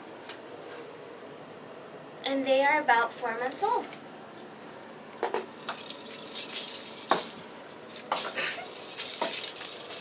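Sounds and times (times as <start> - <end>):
jingling rattles: 5.6 - 10.0.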